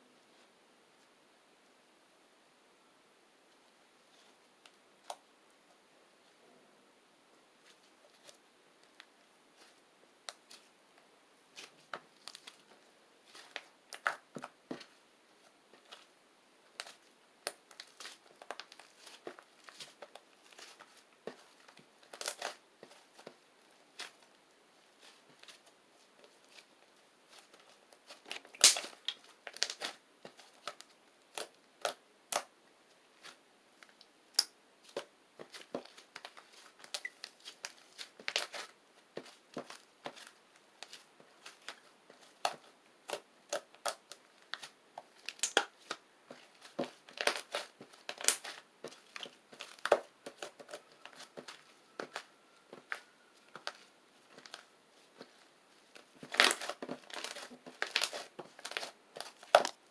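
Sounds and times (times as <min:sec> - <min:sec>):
slime crackling and popping: 0:13.3 - 0:15.0, 0:16.7 - 0:24.3, 0:27.3 - 0:32.5, 0:33.2 - 0:54.7, 0:56.0 - 0:59.8.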